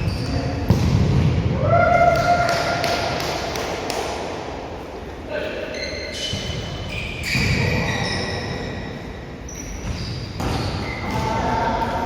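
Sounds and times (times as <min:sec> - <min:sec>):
ball kicked and bouncing: 0:00.6 - 0:01.4
shoes squeaking on floor: 0:05.6 - 0:11.4.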